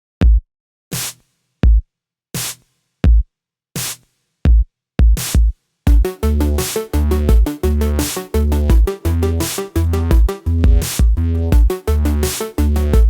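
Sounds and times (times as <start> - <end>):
drum machine beat: 1.0 - 1.8, 2.4 - 3.2, 3.8 - 13.0
synth melody: 5.9 - 10.6, 11.6 - 13.0
bass line: 5.9 - 13.0.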